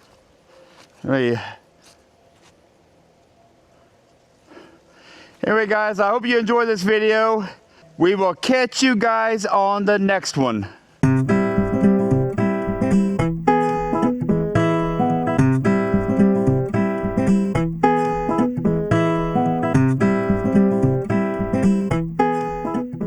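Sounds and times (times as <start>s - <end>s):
strummed acoustic guitar: 11.0s - 23.0s.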